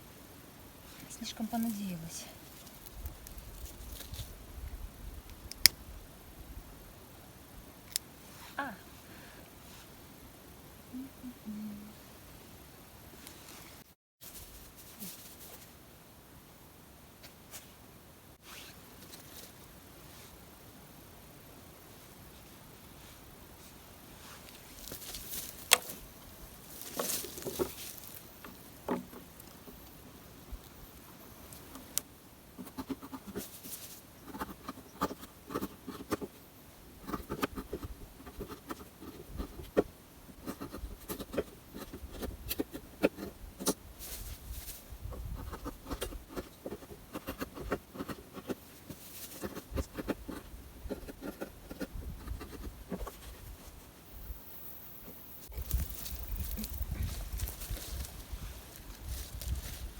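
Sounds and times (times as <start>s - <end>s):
dry sticks and straw rustling: 1.0s - 4.4s, 24.3s - 32.0s, 44.0s - 45.0s, 55.4s - 59.9s.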